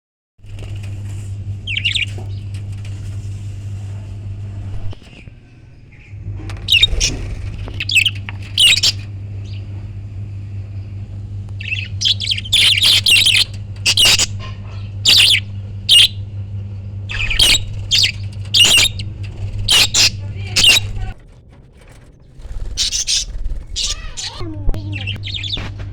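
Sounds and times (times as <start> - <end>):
steady low hum: 0.4 - 25.9
parrots calling: 1.6 - 2.4, 5.9 - 9.7, 11.6 - 16.4, 17.1 - 21.2, 22.4 - 25.8.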